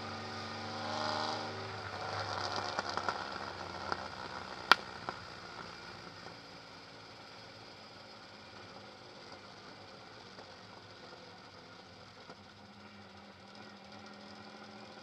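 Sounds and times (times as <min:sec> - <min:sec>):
car engine low hum: 0:00.0 - 0:15.0
exhaust crack: 0:00.9 - 0:05.3.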